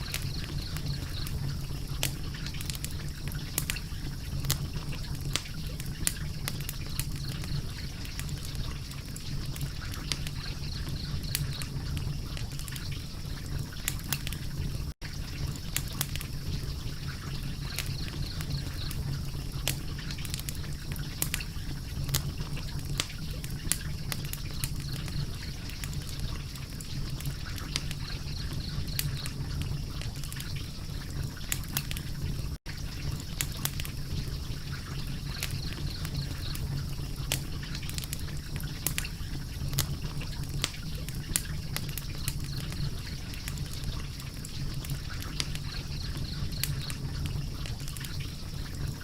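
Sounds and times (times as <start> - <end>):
fire crackling and popping: 0.0 - 49.0.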